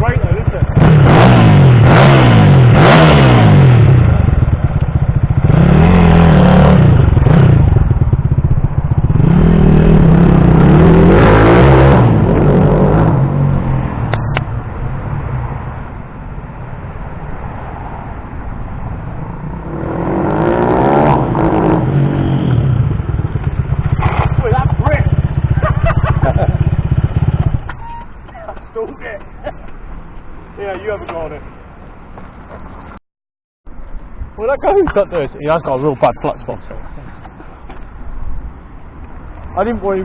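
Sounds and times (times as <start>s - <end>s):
motorcycle engine revving: 0.0s - 14.4s, 19.4s - 27.7s.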